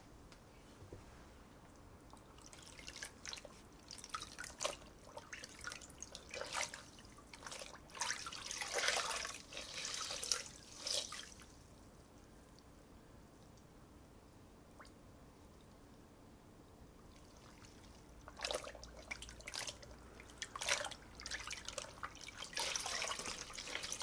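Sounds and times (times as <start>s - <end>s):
water drips and splashes: 17.2s - 24.0s.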